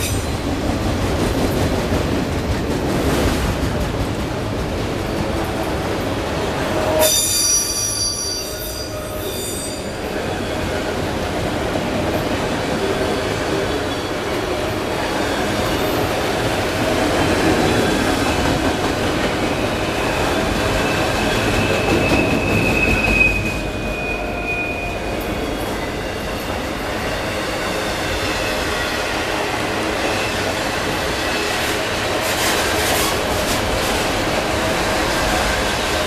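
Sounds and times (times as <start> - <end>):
freight train rolling past: 0.0 - 36.0
high wheel squeal: 6.9 - 10.7, 20.7 - 26.3.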